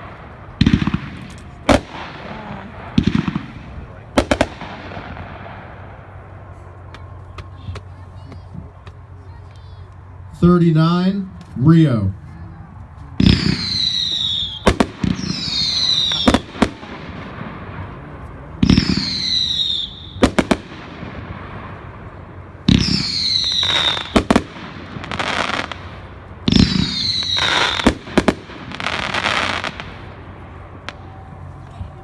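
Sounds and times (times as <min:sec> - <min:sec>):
sharp cracking reports: 0:00.0 - 0:06.3
falling firework whistle: 0:13.2 - 0:16.8, 0:18.6 - 0:20.7, 0:22.7 - 0:25.8, 0:26.4 - 0:30.0.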